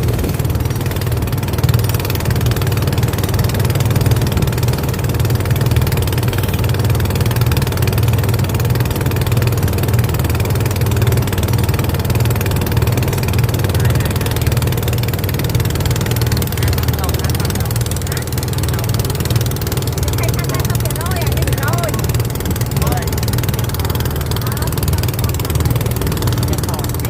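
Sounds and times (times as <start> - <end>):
boat engine droning: 0.0 - 27.0.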